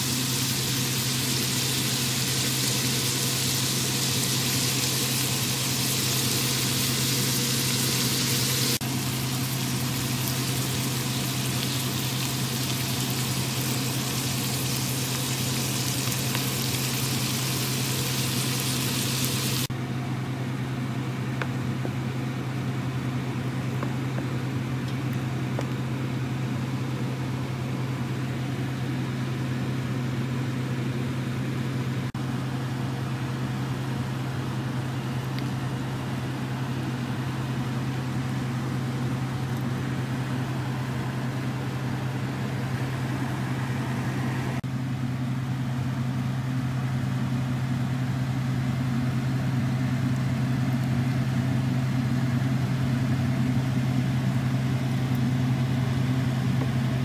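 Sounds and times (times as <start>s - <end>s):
soup simmering hiss: 0.0s - 19.7s, 38.7s - 44.6s
vegetables and bacon sizzling: 0.0s - 19.7s.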